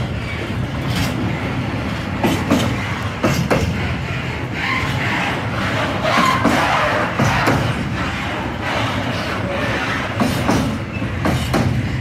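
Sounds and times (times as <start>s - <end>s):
freight train rumbling past: 0.0s - 12.0s
wheels clacking over rail joint: 1.9s - 3.9s, 5.6s - 12.0s.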